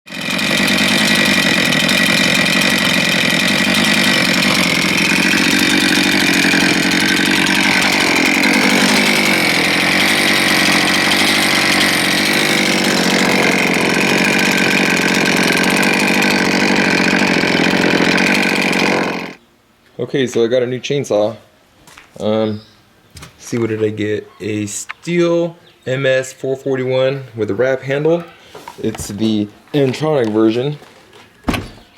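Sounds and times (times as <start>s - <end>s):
chainsaw running at high revs: 0.1s - 19.4s.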